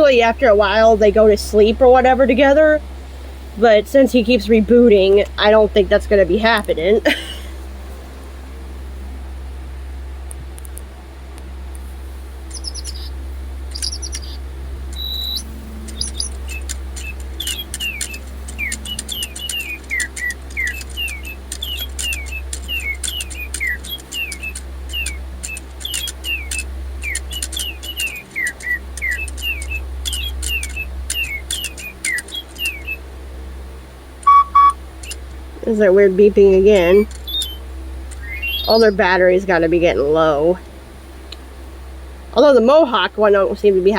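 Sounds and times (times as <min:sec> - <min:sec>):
electronic toy birdsong chirps: 0:12.5 - 0:33.0, 0:34.2 - 0:39.2
short electronic tones: 0:13.7 - 0:33.0, 0:34.2 - 0:35.2
loud electronic beep: 0:13.8 - 0:33.0, 0:34.2 - 0:35.2.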